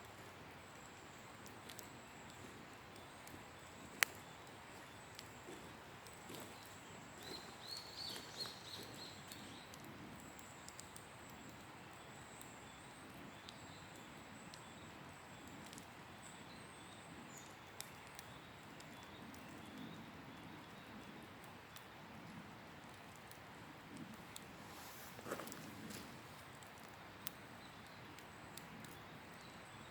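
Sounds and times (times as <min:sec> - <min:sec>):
campfire crackling: 0:00.0 - 0:29.9
bird chirping: 0:01.7 - 0:09.8.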